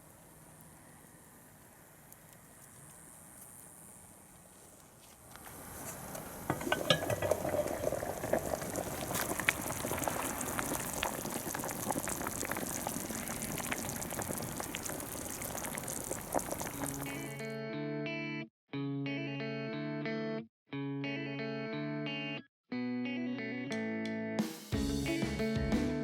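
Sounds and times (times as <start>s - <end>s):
soup bubbling in a pot: 5.5s - 17.4s.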